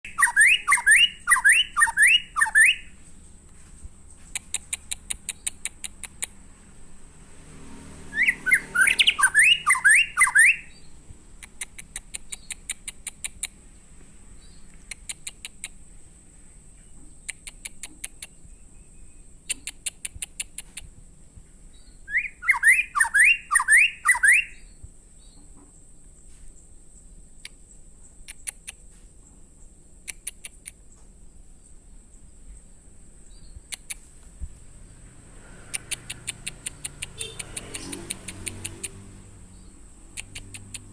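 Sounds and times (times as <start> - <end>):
bird singing sweeping notes: 0.0 - 3.4, 7.4 - 11.2, 21.7 - 25.4, 34.6 - 40.9
high ticking bird notes: 0.0 - 40.9.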